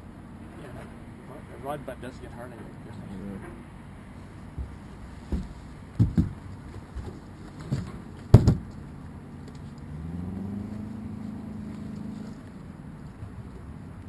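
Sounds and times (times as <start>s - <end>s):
sharp knocks and thumps: 4.5s - 8.8s.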